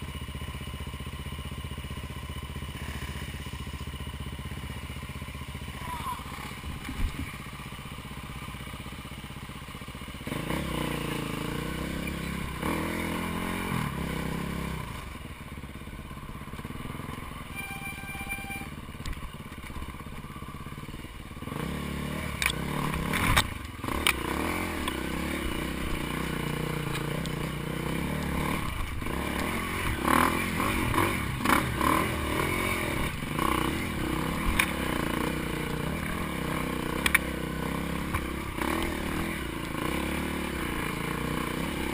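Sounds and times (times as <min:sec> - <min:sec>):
dirt bike engine running: 0:00.0 - 0:41.9.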